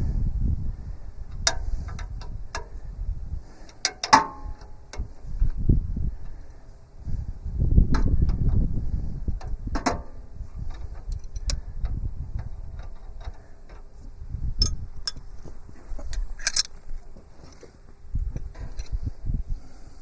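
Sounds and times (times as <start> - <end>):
metallic clicks and knocks of tools: 3.7 - 5.1, 16.0 - 16.8.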